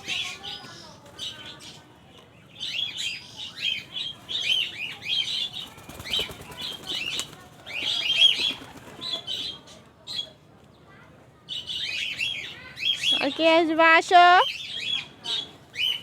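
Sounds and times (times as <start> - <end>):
small birds chirping: 0.0 - 16.0
pigeon wings flapping: 5.6 - 9.3.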